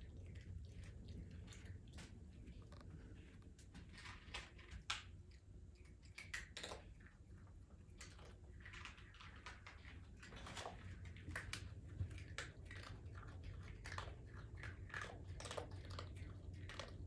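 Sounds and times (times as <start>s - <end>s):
animal chewing crunches: 0.0s - 17.0s.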